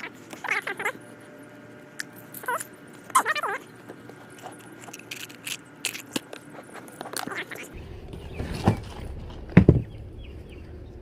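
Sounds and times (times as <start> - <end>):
items being rummaged through: 2.0 - 10.0.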